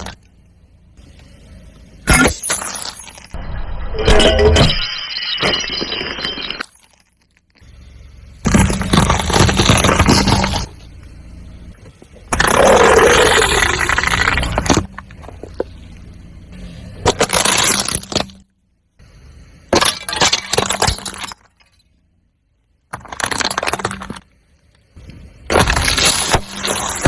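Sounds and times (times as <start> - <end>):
tyre crushing crunchy objects: 8.4 - 10.8, 11.8 - 15.8, 16.8 - 18.4, 25.0 - 27.0.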